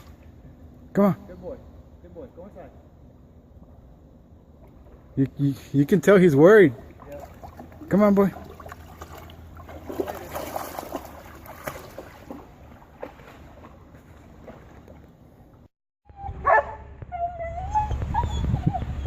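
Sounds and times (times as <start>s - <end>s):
dog barking: 16.4s - 16.9s
dog whining: 17.1s - 19.0s.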